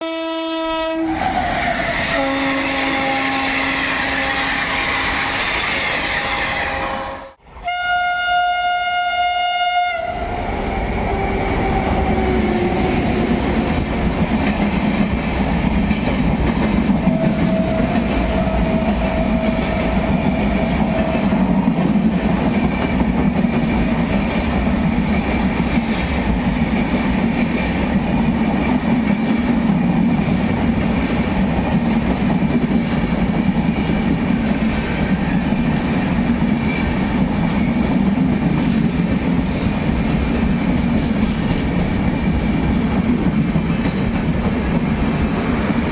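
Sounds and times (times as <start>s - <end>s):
train horn blowing: 0.0s - 11.8s
train rushing past: 0.0s - 45.9s
wheel and rail noise: 10.2s - 45.9s.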